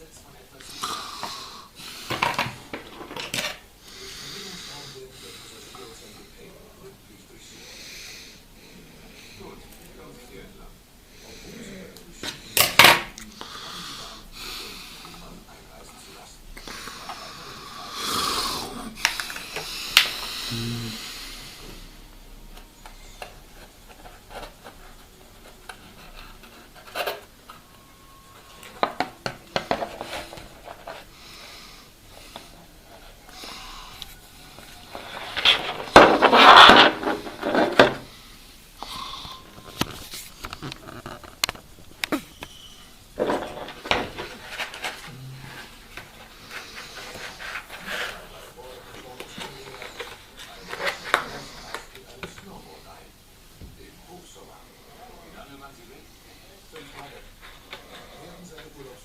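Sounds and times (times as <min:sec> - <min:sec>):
rustling or scraping: 0:34.5 - 0:38.1, 0:39.5 - 0:41.9, 0:43.2 - 0:51.8
clicks and knocks of handling: 0:39.7 - 0:42.1.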